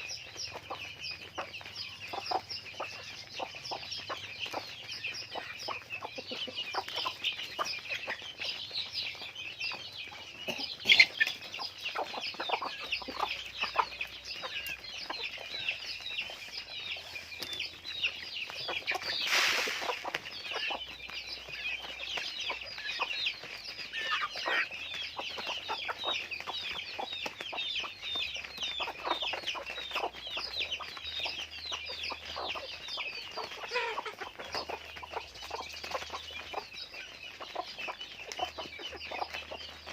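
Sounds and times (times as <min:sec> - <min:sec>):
chickens clucking: 0:00.0 - 0:39.9
rustling burst: 0:19.1 - 0:20.2.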